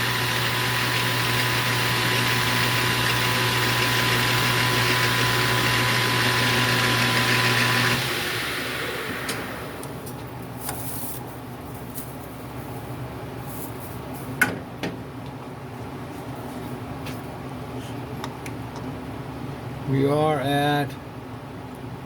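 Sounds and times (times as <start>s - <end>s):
metal lathe humming and whining: 0.0s - 10.0s.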